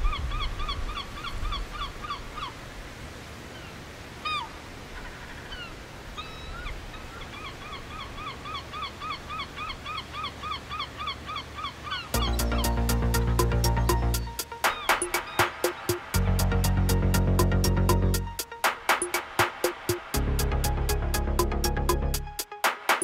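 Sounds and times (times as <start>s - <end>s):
bird calling rapidly: 3.5s - 16.7s.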